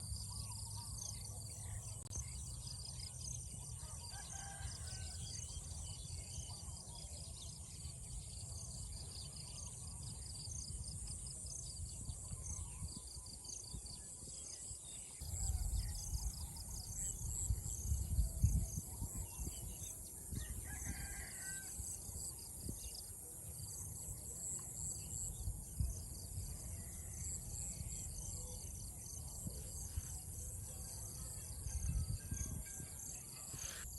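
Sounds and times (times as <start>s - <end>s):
rooster crowing: 20.6s - 21.8s.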